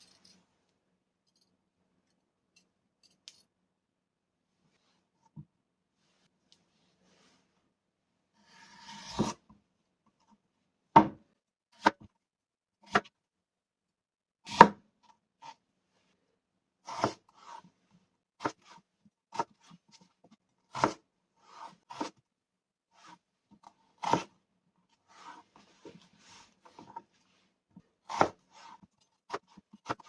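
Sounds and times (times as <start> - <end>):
knife cutting radish on board: 8.4 - 9.4, 12.9 - 13.1, 14.5 - 14.8, 16.9 - 17.6, 18.4 - 19.7, 20.7 - 22.2, 24.0 - 24.3, 28.0 - 30.0.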